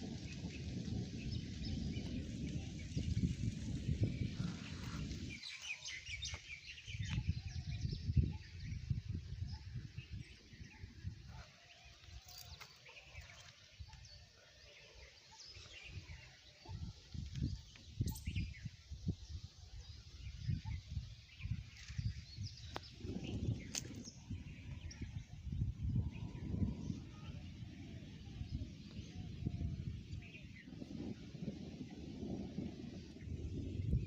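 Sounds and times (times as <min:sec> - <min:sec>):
wind buffeting microphone: 0:00.0 - 0:34.0
birds chirping and calling: 0:10.0 - 0:18.7.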